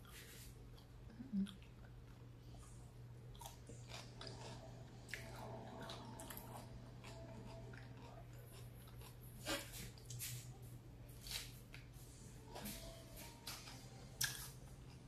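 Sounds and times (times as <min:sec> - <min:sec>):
chewing and biting food: 0:00.0 - 0:10.4, 0:13.4 - 0:15.0.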